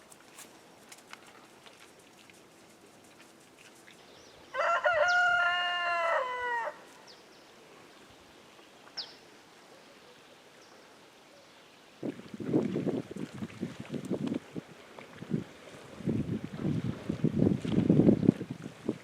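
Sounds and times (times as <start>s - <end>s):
rooster crowing: 4.5s - 6.9s.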